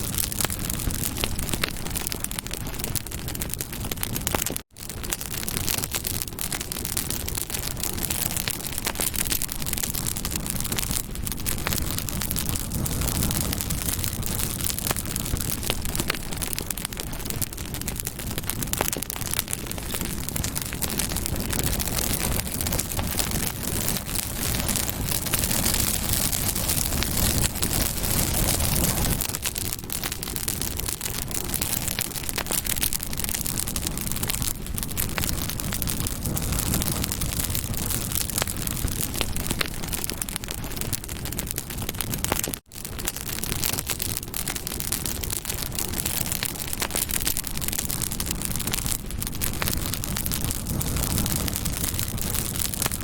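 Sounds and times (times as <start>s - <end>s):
wood crackling and popping: 0.0s - 53.0s
hiss of flame: 10.5s - 17.4s, 18.1s - 32.0s, 48.5s - 53.0s.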